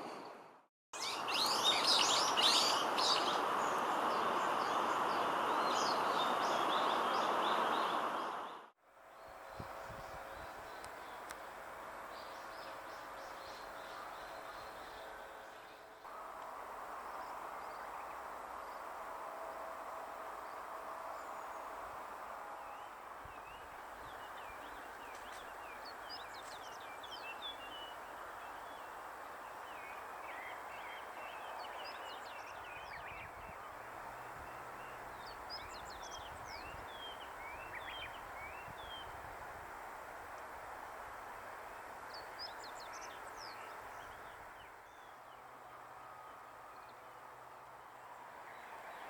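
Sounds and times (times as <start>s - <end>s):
steady background hiss: 1.0s - 49.0s
small birds chirping: 22.6s - 39.1s.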